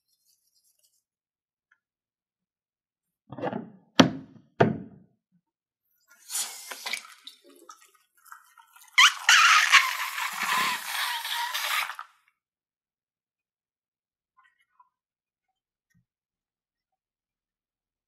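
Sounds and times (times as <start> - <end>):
sharp knocks: 3.3 - 5.0.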